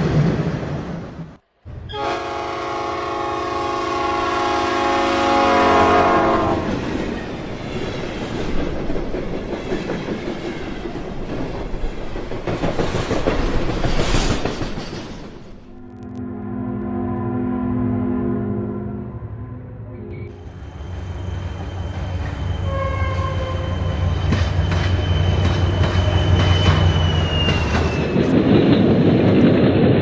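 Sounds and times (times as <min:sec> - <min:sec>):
train horn blast: 0:01.8 - 0:06.8, 0:15.8 - 0:20.5, 0:22.6 - 0:23.8
train clattering on rails: 0:05.4 - 0:15.9, 0:20.8 - 0:30.0.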